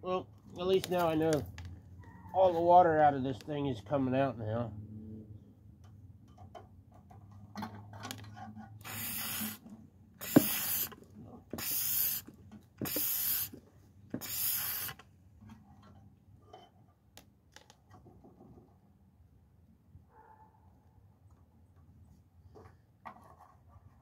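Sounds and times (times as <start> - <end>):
short hissing spray bursts: 8.8 - 9.6, 10.2 - 11.0, 11.6 - 13.6, 14.2 - 15.0.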